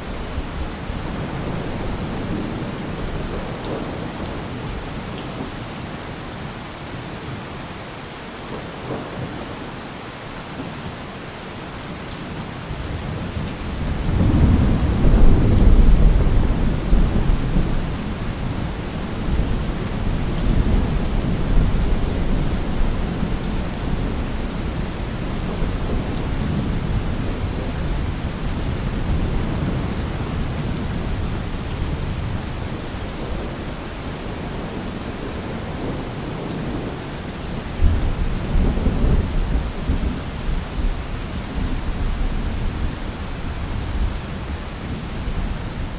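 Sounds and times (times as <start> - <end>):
heavy rain: 0.0 - 45.9
rolling thunder: 13.8 - 31.4.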